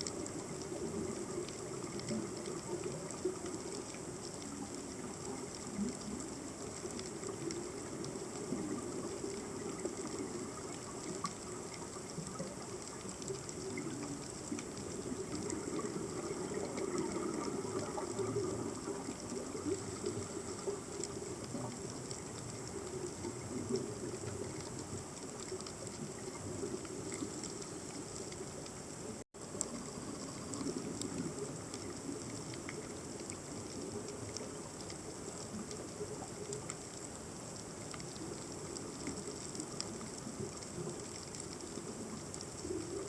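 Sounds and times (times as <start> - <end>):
faint crackling clicks: 0.0 - 43.0
underwater water noise: 0.0 - 43.0.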